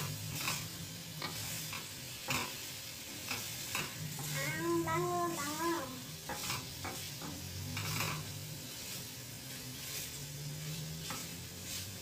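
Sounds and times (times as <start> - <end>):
chicken sizzling in frying pan: 0.0 - 12.0
wooden spoon scraping pan: 6.2 - 8.3.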